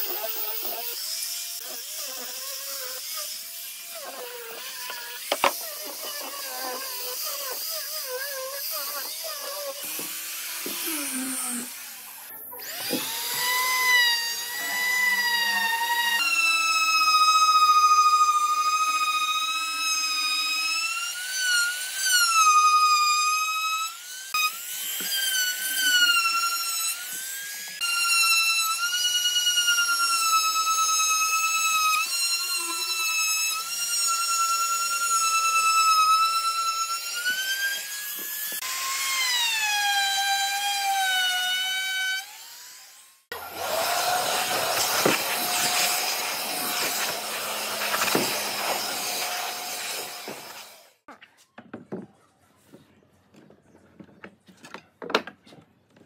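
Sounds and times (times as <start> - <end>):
power tool motor whine: 0.0 - 22.0, 41.8 - 51.0.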